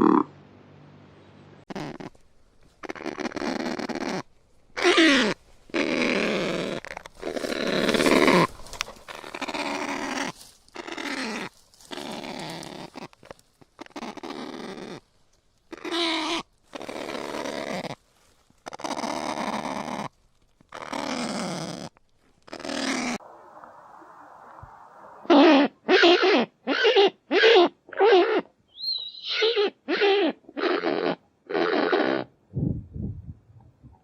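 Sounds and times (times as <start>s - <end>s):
bird giving hoarse calls: 0.0s - 0.3s, 1.7s - 2.2s, 2.8s - 13.2s, 13.8s - 15.0s, 15.7s - 18.0s, 24.9s - 32.4s.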